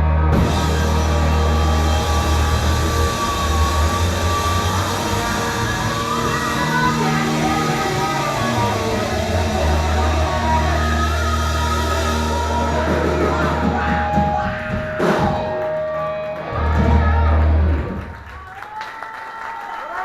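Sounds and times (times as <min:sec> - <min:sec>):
long held low bass note: 0:00.0 - 0:15.3
rock band playing: 0:00.0 - 0:18.4.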